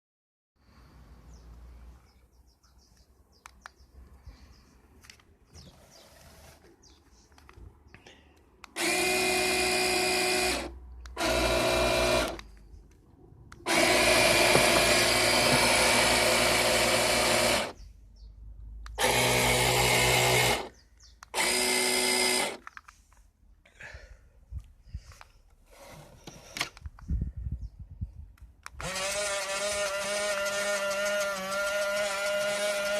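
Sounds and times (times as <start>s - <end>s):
electric propeller motors whirring: 8.7s - 12.5s, 13.6s - 17.8s, 18.9s - 22.6s, 28.8s - 32.9s.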